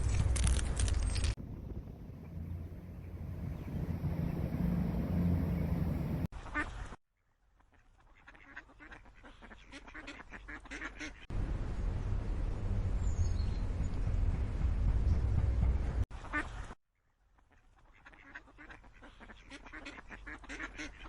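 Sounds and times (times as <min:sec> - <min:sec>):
wind rumbling on microphone: 0:00.0 - 0:06.3, 0:11.3 - 0:16.0
ducks quacking: 0:07.6 - 0:11.3, 0:16.2 - 0:16.8, 0:17.4 - 0:21.0.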